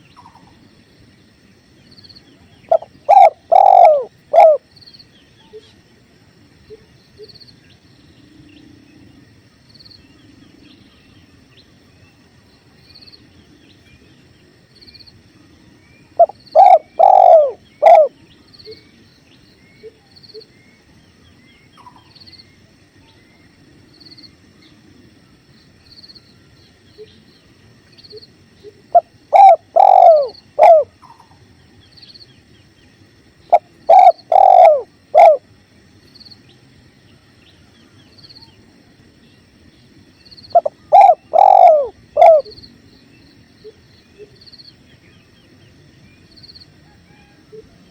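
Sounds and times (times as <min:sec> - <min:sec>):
dove cooing: 0:02.7 - 0:04.7, 0:16.2 - 0:18.8, 0:28.7 - 0:31.4, 0:33.5 - 0:35.5, 0:40.5 - 0:42.6.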